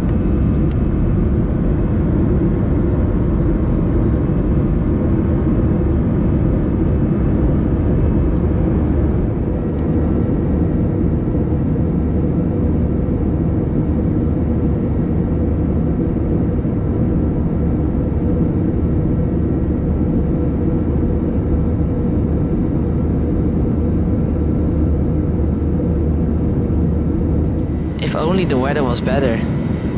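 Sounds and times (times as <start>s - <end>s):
aircraft cabin engine roar: 27.5s - 29.9s
faint steady hum: 27.5s - 29.9s.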